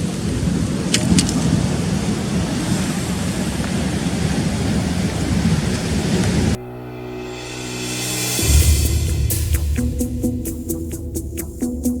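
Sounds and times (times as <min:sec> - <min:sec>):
rough sea breaking on rocks: 0:00.0 - 0:06.6
wind rumbling on microphone: 0:00.0 - 0:06.6.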